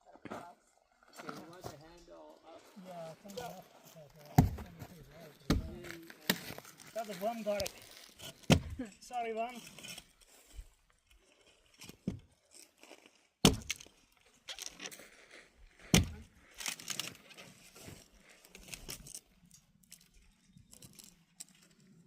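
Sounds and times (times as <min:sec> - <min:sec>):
tools clicking and scraping: 0:18.5 - 0:22.0.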